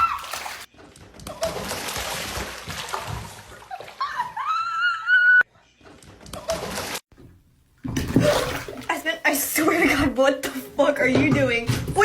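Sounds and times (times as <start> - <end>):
water splashing and sloshing: 0.0 - 4.6, 5.8 - 10.2.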